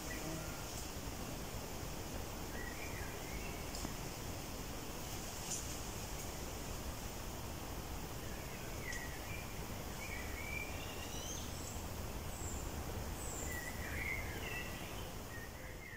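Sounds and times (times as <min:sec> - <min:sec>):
small birds singing: 0:02.5 - 0:04.1, 0:08.1 - 0:15.9.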